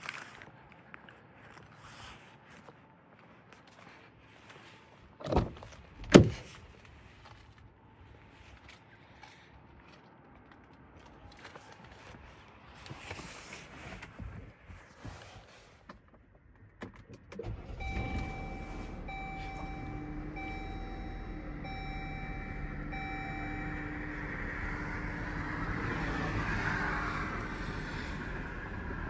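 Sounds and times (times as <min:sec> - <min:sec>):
car engine starting and idling: 0:16.9 - 0:29.0
in-car warning chime: 0:17.4 - 0:26.0.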